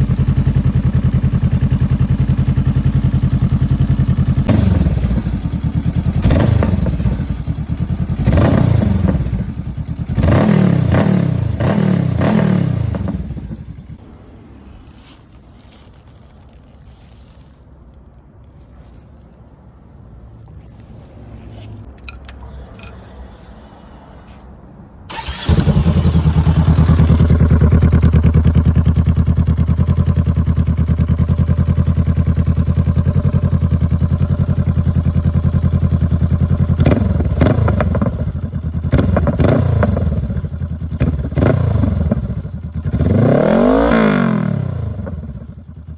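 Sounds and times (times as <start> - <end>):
motorcycle engine starting and idling: 0.0 - 14.0, 21.6 - 45.9
engine revving: 4.4 - 13.7, 25.1 - 29.9, 36.5 - 45.6.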